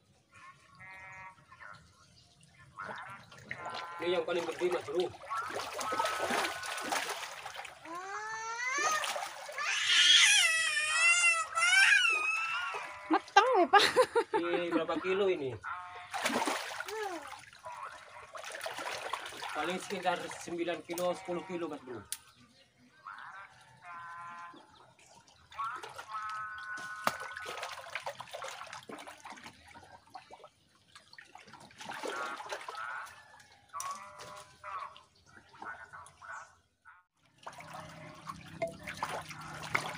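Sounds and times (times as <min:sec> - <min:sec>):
splashing in muddy water: 0:02.4 - 0:13.8, 0:15.7 - 0:22.3, 0:23.0 - 0:36.6, 0:37.2 - 0:39.9
long wavering animal cry: 0:07.9 - 0:13.2.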